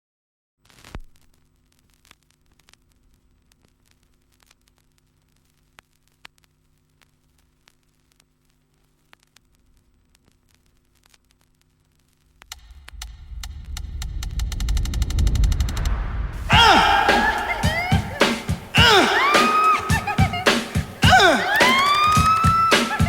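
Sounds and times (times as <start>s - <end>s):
small ticks and clicks: 0.7s - 13.0s.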